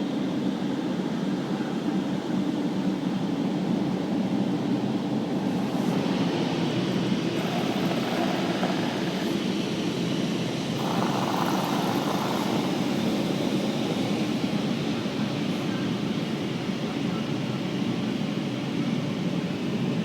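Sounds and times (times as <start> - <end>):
car wash machinery rushing: 4.7 - 17.2.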